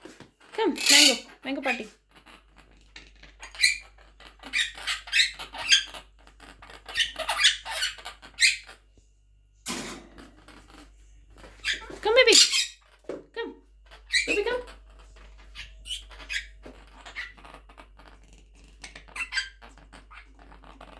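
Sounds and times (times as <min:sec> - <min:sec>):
parrot squeaky chirps: 0:00.8 - 0:01.8, 0:03.4 - 0:08.8, 0:11.6 - 0:12.9, 0:13.9 - 0:20.9.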